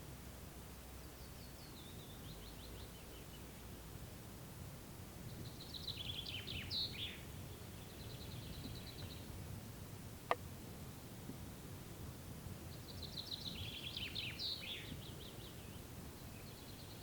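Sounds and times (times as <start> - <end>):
low background hiss: 0.0 - 17.0
songbirds singing: 1.0 - 3.7, 5.2 - 9.4, 12.6 - 17.0.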